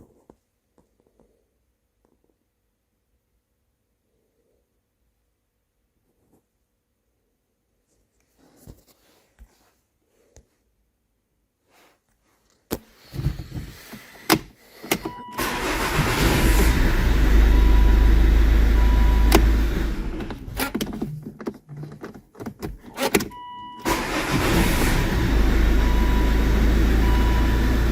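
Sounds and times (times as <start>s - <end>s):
car engine starting and running: 14.2s - 22.0s, 22.8s - 27.9s.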